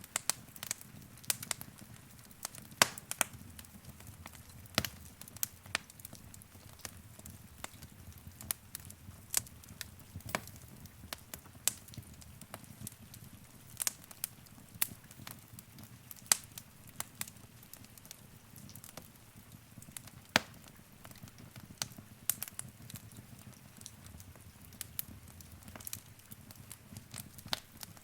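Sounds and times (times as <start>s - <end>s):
wood fire crackling and popping: 0.0s - 28.0s
low rumble of flames: 0.1s - 28.0s.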